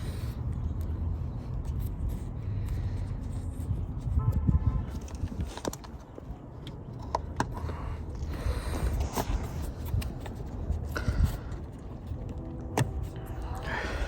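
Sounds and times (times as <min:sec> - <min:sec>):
rustling and scraping: 0:00.6 - 0:14.0
seatbelt clicks and taps: 0:12.2 - 0:13.0.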